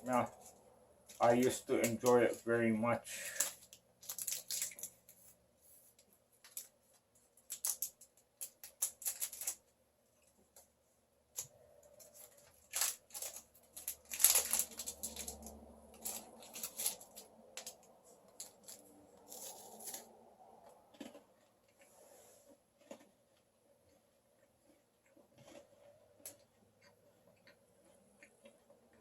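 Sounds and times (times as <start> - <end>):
wafer chocolate bar crackling: 0.0 - 9.8, 11.3 - 21.9.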